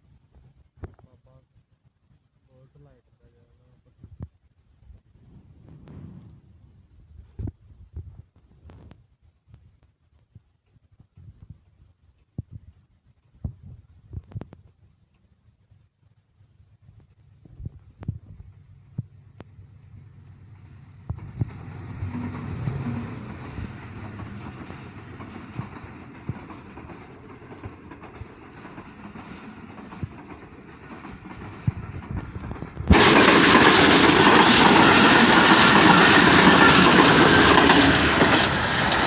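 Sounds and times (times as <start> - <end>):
train passing close by: 19.2 - 39.0
train wheels clicking over rail joints: 19.9 - 39.0.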